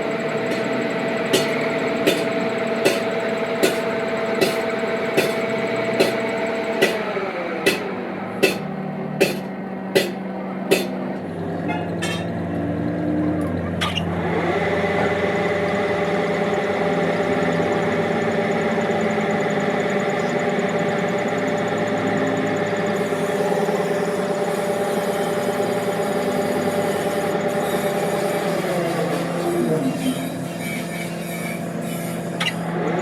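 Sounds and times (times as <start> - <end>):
machine motor humming: 0.0 - 11.6.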